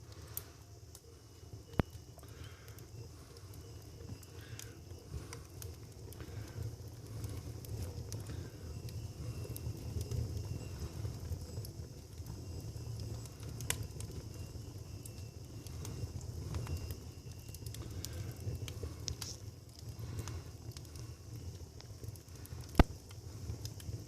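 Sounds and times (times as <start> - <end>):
fire crackling and popping: 0.0 - 24.0
low fire rumble: 0.0 - 24.0.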